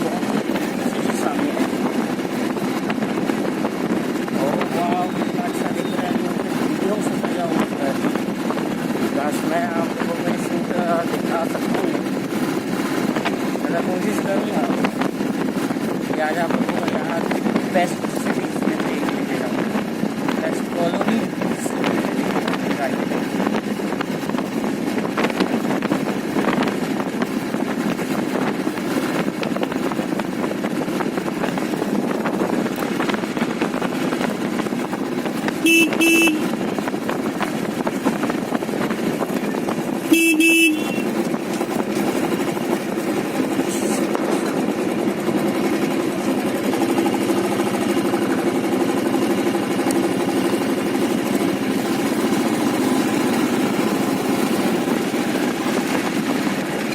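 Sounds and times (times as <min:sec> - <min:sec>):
motorcycle engine running: 0:00.0 - 0:56.9
road noise: 0:00.0 - 0:56.9
motorcycle horn honks: 0:35.6 - 0:36.6, 0:40.1 - 0:41.1.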